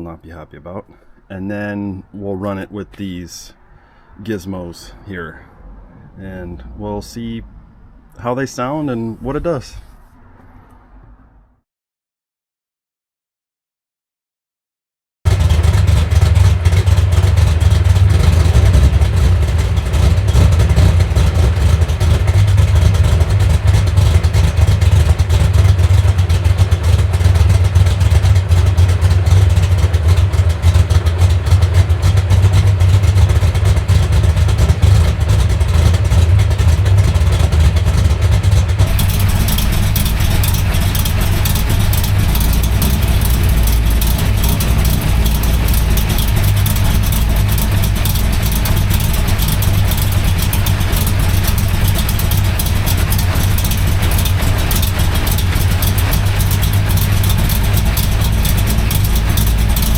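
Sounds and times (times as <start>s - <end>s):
car engine idling unevenly: 15.3s - 59.9s.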